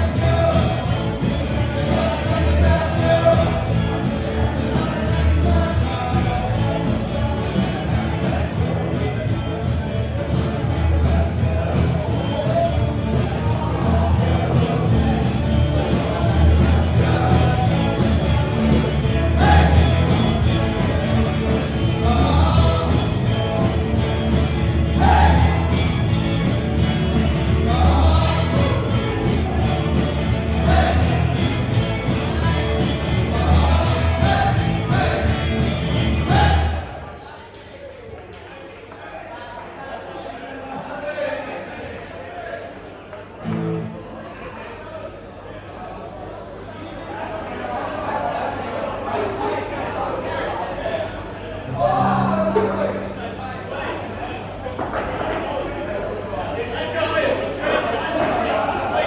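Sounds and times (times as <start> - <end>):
live band playing: 0.0 - 36.8, 51.7 - 54.0
steady cymbal beat: 0.0 - 36.9
strong bass: 0.0 - 37.1, 51.6 - 54.6
person singing: 22.0 - 23.4, 27.5 - 29.4, 51.7 - 53.6.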